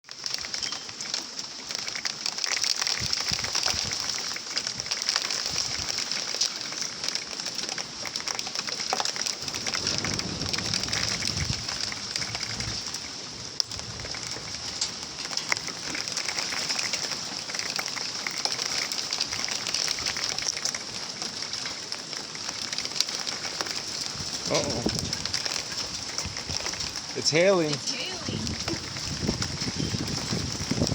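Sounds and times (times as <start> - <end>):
heavy rain pattering: 0.0 - 30.9.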